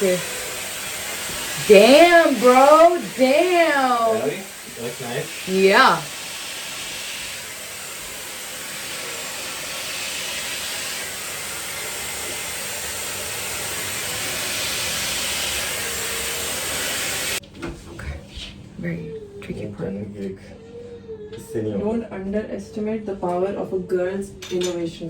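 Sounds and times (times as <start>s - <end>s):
hair dryer blowing: 0.0s - 17.4s.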